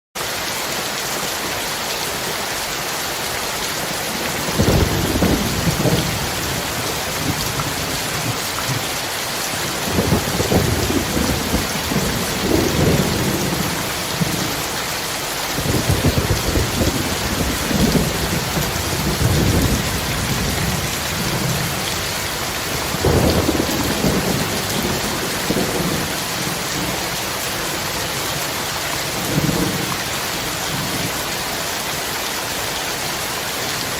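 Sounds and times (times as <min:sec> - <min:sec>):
steady rain hissing: 0:00.2 - 0:33.9
thunder rumbling: 0:04.2 - 0:09.0, 0:09.6 - 0:28.1.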